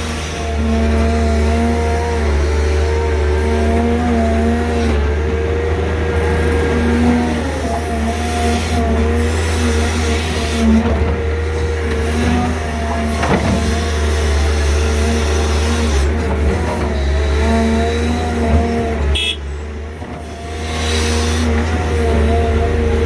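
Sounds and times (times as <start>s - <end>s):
excavator diesel engines working: 0.0s - 23.0s.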